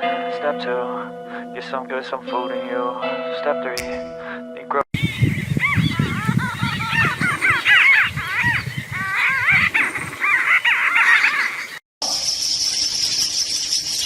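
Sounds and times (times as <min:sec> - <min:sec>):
low thumps: 0:03.8 - 0:04.4
animal squeaky calls: 0:05.0 - 0:11.8.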